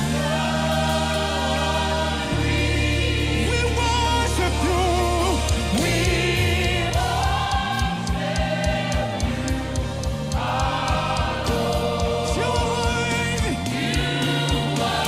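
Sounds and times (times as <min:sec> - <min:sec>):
bass notes: 0:00.0 - 0:15.0
gospel choir singing: 0:00.0 - 0:15.0
percussion beat: 0:04.9 - 0:15.0.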